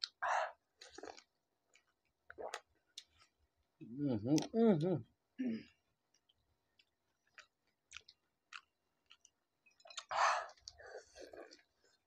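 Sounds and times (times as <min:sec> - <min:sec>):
crunchy shell bitten and chewed: 0:06.1 - 0:12.0.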